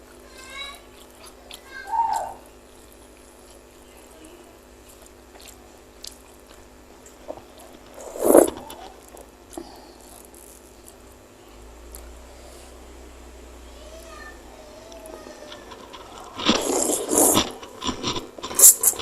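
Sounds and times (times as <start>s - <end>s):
person chewing: 0.9s - 3.8s, 4.7s - 11.0s, 14.9s - 19.0s.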